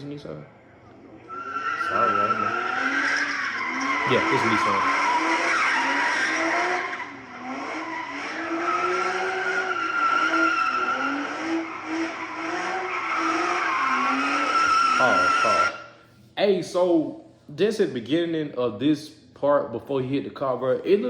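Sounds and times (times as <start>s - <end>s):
car engine revving: 0.7s - 15.9s
tire squeal: 1.2s - 16.0s.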